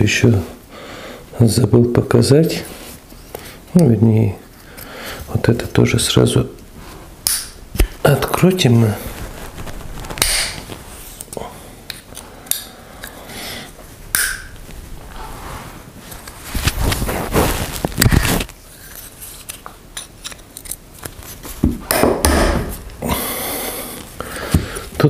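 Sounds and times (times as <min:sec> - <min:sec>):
scraping and handling noise: 0:07.8 - 0:13.9, 0:14.5 - 0:21.9.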